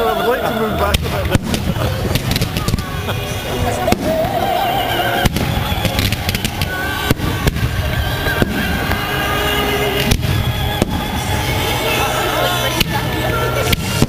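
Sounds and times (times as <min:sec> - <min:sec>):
fireworks bursts and crackle: 0:00.0 - 0:14.0
sharp fireworks bangs: 0:00.8 - 0:14.0.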